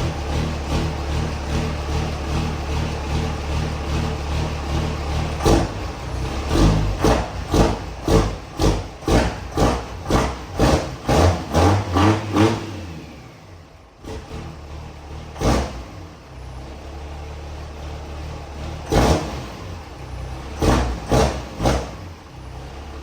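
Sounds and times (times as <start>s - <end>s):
truck engine loping idle: 0.0s - 10.0s.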